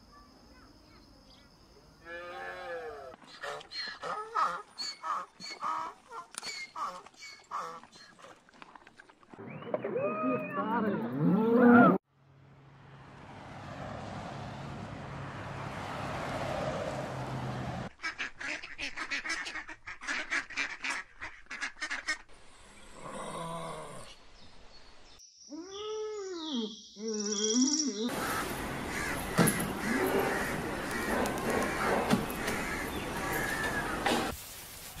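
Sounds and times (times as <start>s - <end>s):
duck quacking: 17.9s - 22.3s.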